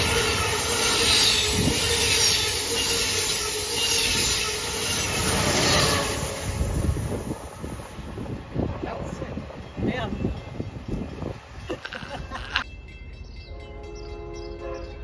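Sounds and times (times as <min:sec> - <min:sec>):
train rushing past: 0:00.0 - 0:11.7.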